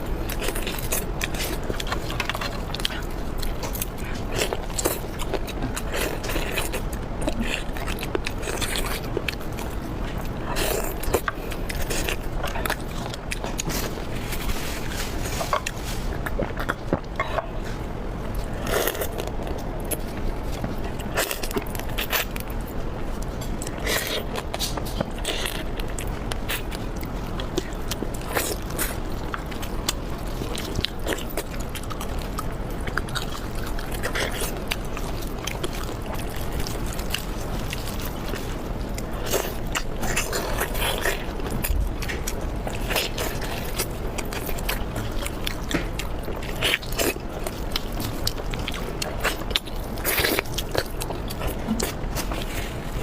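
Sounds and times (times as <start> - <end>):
low background hum: 0.0 - 53.0
person biting and chewing: 23.2 - 53.0.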